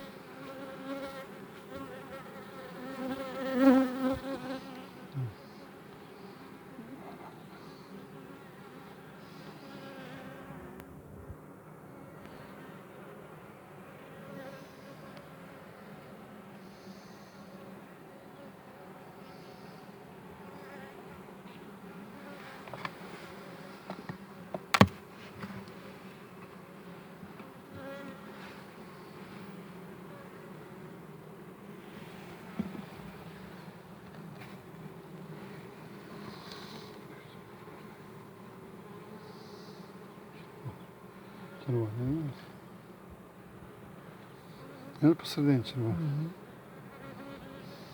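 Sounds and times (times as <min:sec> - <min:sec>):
honeybees buzzing: 0:00.0 - 0:47.9
sharp knock: 0:24.7 - 0:25.0.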